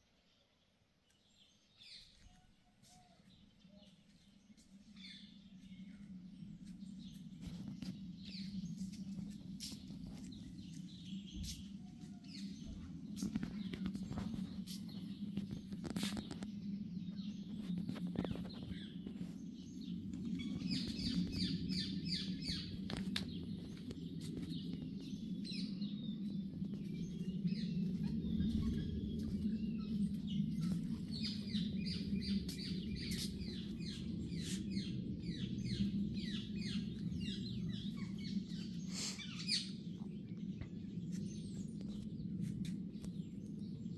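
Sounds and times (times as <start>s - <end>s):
small birds chirping: 0.0s - 43.9s
steady low hum: 0.9s - 43.9s.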